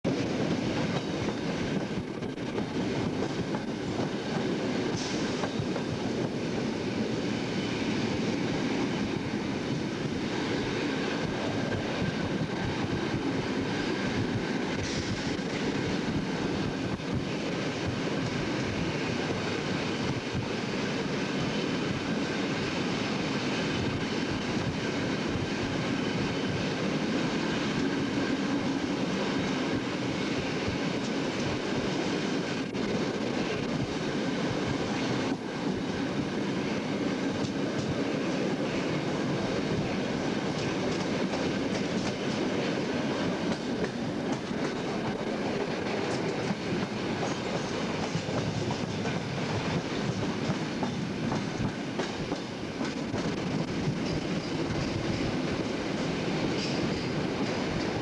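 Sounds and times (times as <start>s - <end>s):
train wheels rumbling: 0.0s - 58.0s
wheels clicking over rail joints: 43.5s - 58.0s.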